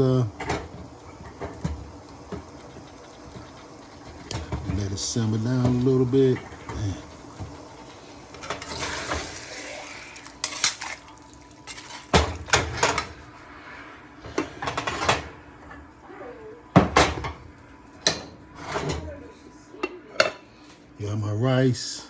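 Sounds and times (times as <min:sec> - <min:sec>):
metal utensils clinking on pots: 0:10.3 - 0:11.0.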